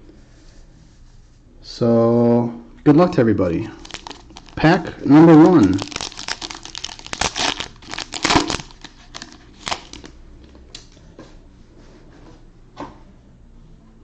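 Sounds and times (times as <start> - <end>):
wrapper tearing and crinkling: 3.8 - 10.1.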